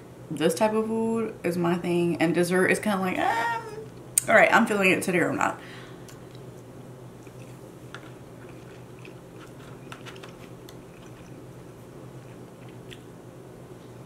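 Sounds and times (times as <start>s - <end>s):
wet chewing: 6.1s - 13.1s.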